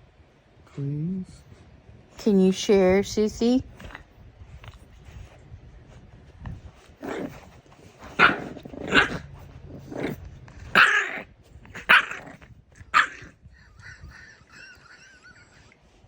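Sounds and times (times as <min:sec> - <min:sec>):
dogs barking and growling: 0:06.8 - 0:15.8.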